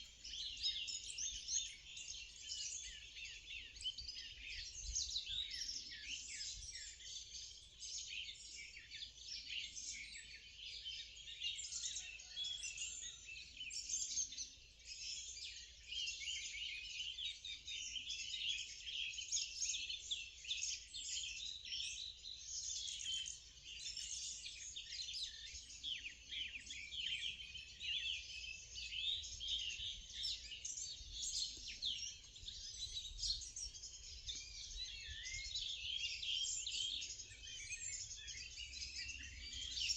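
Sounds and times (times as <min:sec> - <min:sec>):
birds chirping and trilling chorus: 0:00.0 - 0:39.9.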